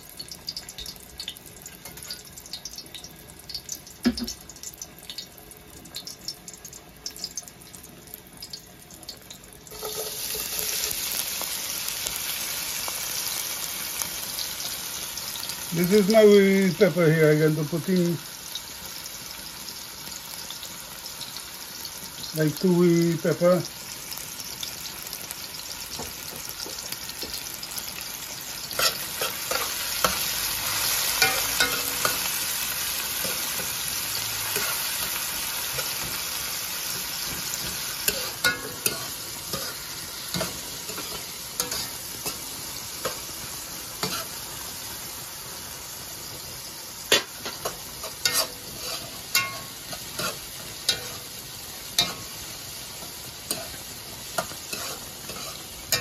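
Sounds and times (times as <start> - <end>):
onions sizzling in oil: 0.0 - 56.0.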